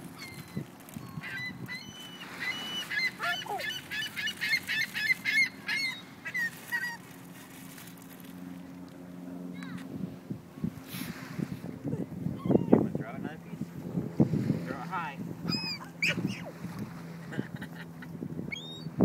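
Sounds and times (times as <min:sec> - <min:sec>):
steady low hum: 0:00.0 - 0:19.0
gulls squawking: 0:00.1 - 0:07.1, 0:15.4 - 0:16.6.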